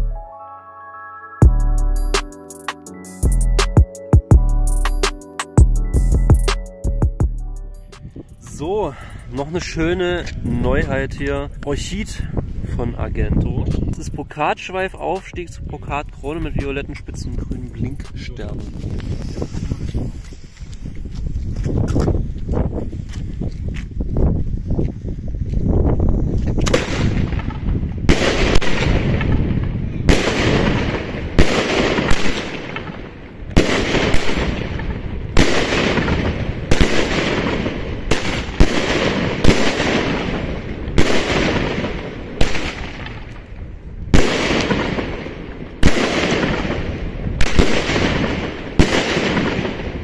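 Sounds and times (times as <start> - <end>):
fireworks hiss: 18.6 - 21.2
fireworks bangs: 26.6 - 43.4, 44.1 - 50.0.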